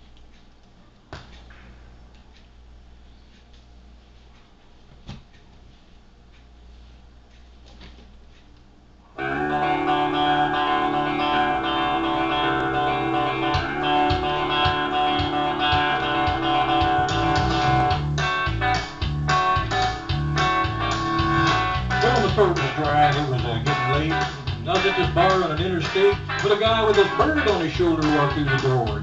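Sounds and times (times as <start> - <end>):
country band playing: 9.2 - 29.0
drum hits: 13.6 - 29.0.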